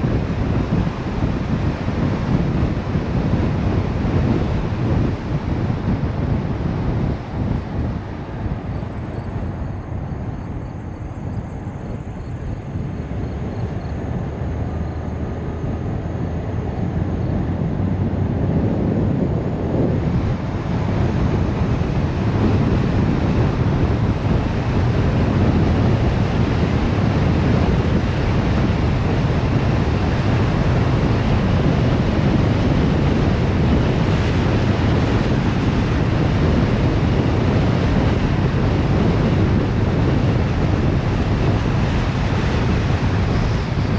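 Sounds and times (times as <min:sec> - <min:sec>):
car road and wind noise: 0:00.0 - 0:43.9.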